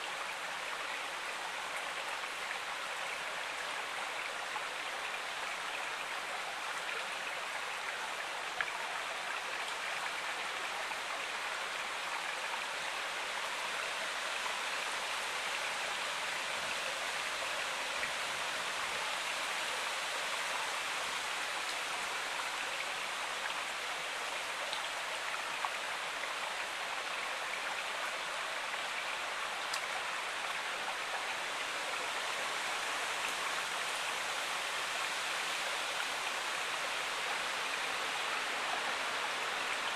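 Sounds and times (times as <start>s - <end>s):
stream water flowing: 0.0s - 39.9s
faint ticks: 29.7s - 30.0s.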